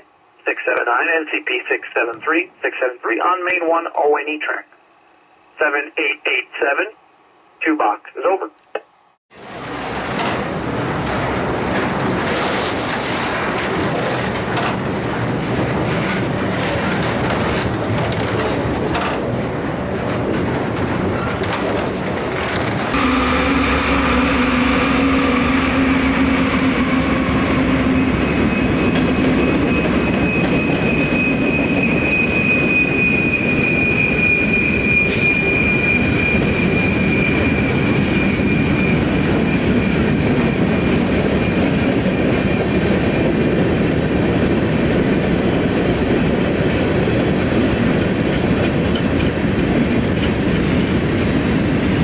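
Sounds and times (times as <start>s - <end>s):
freight train passing: 9.4s - 52.0s
rail car wheel clatter: 9.4s - 52.0s
high wheel squeal: 23.0s - 40.0s.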